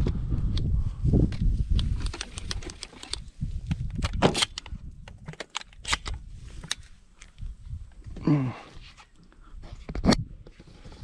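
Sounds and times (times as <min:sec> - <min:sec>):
sharp clicks and knocks: 0:01.3 - 0:07.3.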